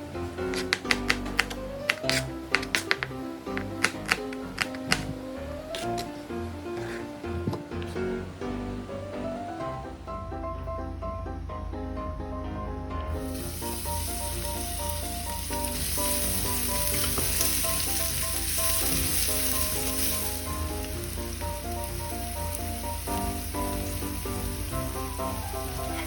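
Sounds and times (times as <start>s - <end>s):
background music: 0.0s - 26.0s
food sizzling in hot oil: 13.1s - 26.0s.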